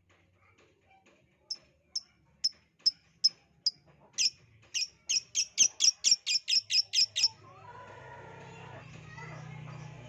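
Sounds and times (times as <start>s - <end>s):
bird chirping: 2.8s - 7.4s.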